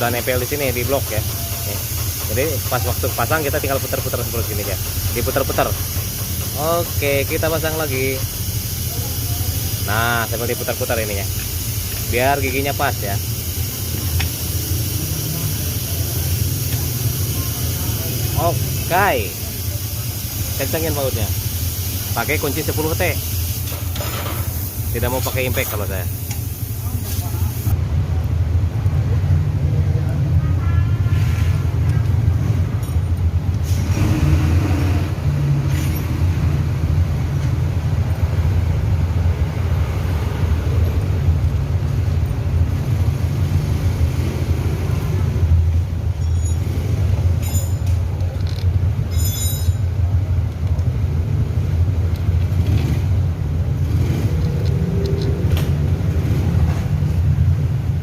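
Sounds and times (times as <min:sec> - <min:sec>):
low rumble of vehicle: 0:00.0 - 0:58.0
metallic clicks of hand tools: 0:47.4 - 0:49.8, 0:54.3 - 0:55.9.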